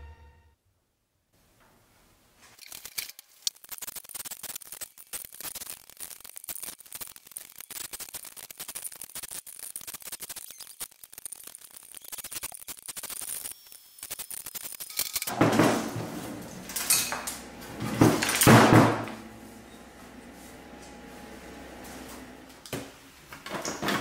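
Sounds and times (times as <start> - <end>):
small parts clicking and rattling: 2.6 - 15.3
sheet-metal frame scraping and clattering: 15.3 - 22.4.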